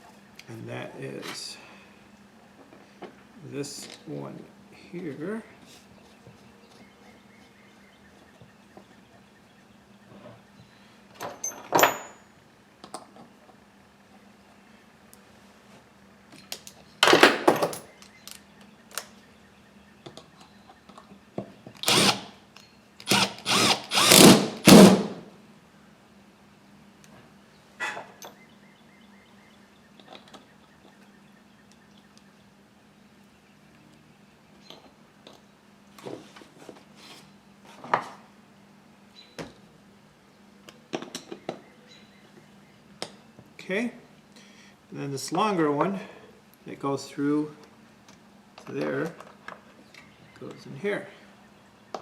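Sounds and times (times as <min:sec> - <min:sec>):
power drill bursts: 0:21.8 - 0:22.3, 0:23.0 - 0:25.2.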